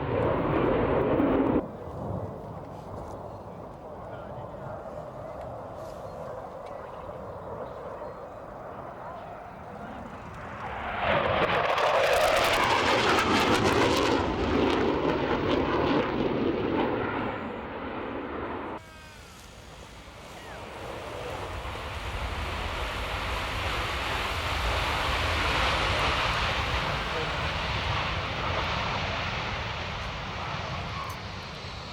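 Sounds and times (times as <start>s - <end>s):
loud jet noise: 0.0s - 1.6s, 8.6s - 31.9s.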